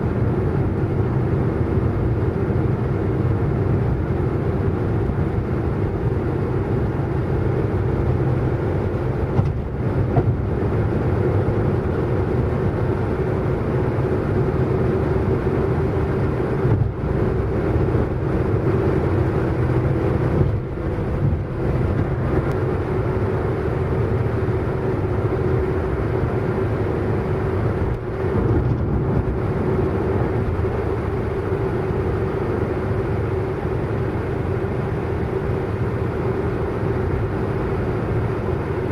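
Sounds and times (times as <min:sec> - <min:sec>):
car engine drone: 0:00.0 - 0:38.9
road and tyre noise: 0:00.0 - 0:38.9.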